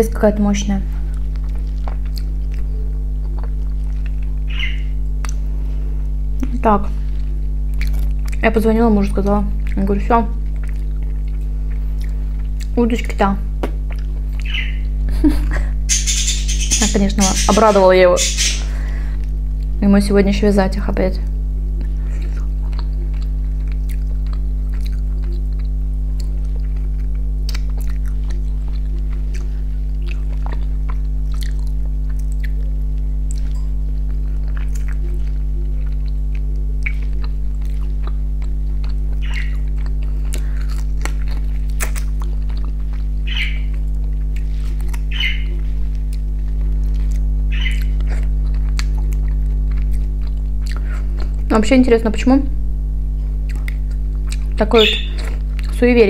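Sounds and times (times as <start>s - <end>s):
steady low hum: 0.0s - 56.0s
chewing and lip-smacking: 1.1s - 5.5s, 7.2s - 8.5s, 9.6s - 12.8s, 13.6s - 15.0s, 21.8s - 51.5s, 53.2s - 55.8s.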